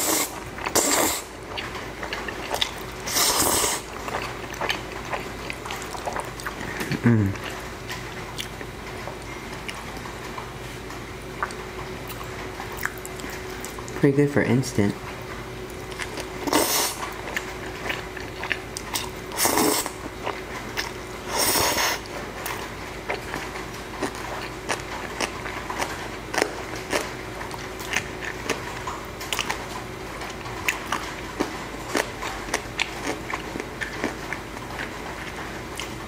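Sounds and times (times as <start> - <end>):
noodle slurping: 0.0 - 7.5, 16.0 - 20.0, 20.8 - 22.1
wet chewing: 0.0 - 10.5, 11.3 - 14.0, 15.6 - 36.0.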